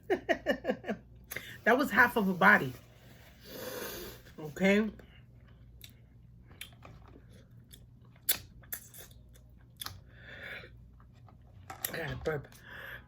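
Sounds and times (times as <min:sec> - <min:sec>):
person chewing with wet smacks: 0:05.4 - 0:10.1.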